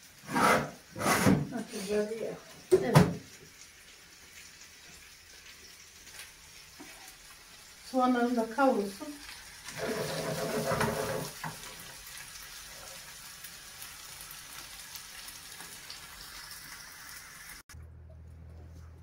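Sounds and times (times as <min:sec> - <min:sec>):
onions sizzling in frying pan: 0:00.0 - 0:17.7
low steady hum: 0:17.8 - 0:19.0.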